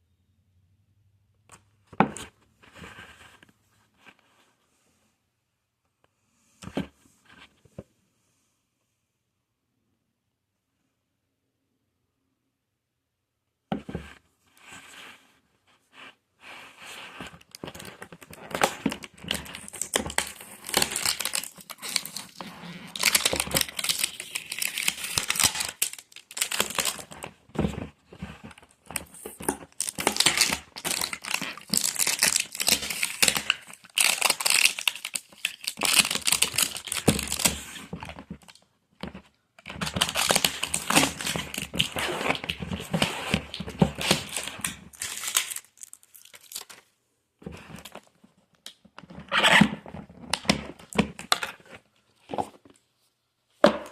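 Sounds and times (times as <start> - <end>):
plastic packaging crinkling and tearing: 17.4 - 27.4, 28.1 - 38.6, 39.6 - 46.9.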